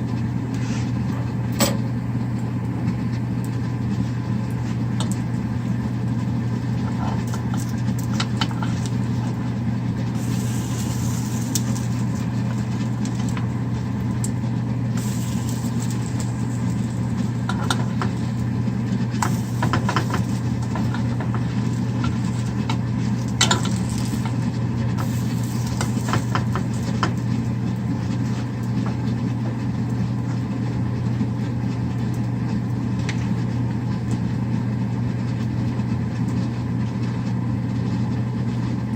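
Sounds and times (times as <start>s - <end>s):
low machine hum: 0.0s - 38.9s
light crackles and clicks: 2.4s - 5.4s, 6.1s - 9.5s, 10.2s - 14.4s, 15.0s - 29.2s
bright hiss: 10.2s - 12.7s, 15.0s - 17.4s.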